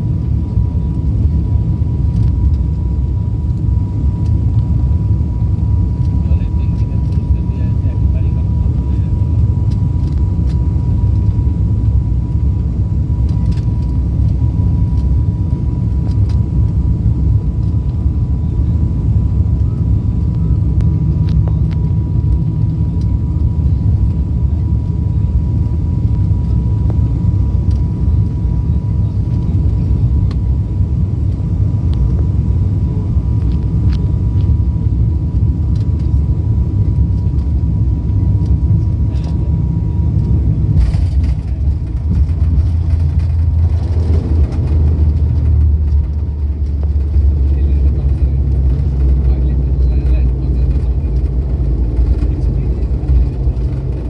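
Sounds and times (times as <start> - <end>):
aircraft engine rumble: 0.0 - 54.0.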